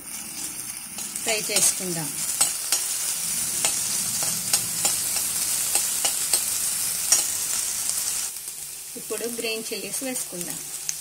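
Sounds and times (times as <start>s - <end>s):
vegetables sizzling in oil: 0.0s - 11.0s
metal spoon scraping a pan: 1.0s - 7.7s.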